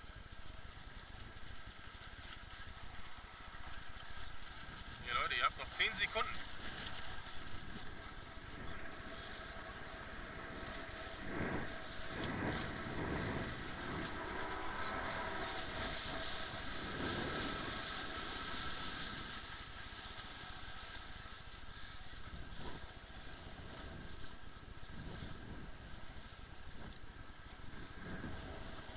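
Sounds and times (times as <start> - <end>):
wind rumbling on microphone: 0.0 - 28.9
water noise: 0.4 - 28.9
motorboat engine: 2.0 - 24.2.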